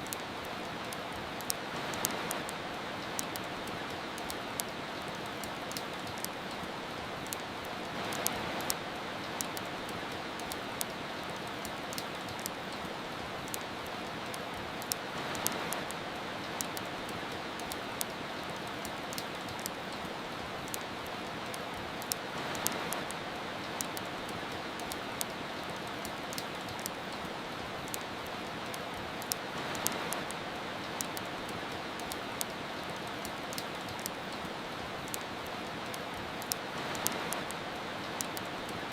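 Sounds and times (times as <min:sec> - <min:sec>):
steady rain hiss: 0:00.0 - 0:38.9
wood fire crackling and popping: 0:00.0 - 0:38.9.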